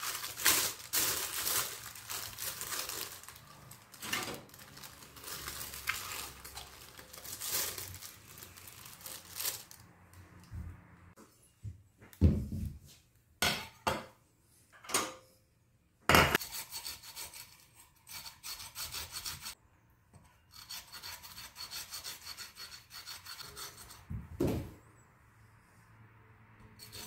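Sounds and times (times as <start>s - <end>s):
peel rasping on metal grater: 16.4s - 19.6s, 20.5s - 24.1s, 26.8s - 27.0s
knocks and thump: 24.1s - 24.8s.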